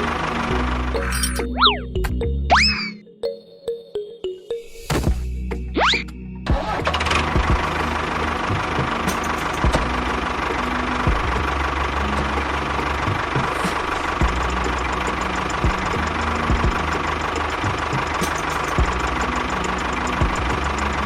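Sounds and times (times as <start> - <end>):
small engine running roughly: 0.0 - 1.4, 6.5 - 21.0.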